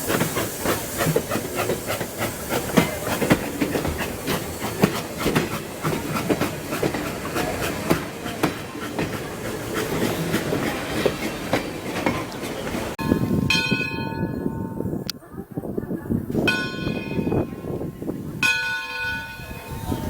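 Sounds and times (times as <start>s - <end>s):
train wheels clicking over rail joints: 0.0s - 14.2s
train rumble: 0.0s - 20.0s.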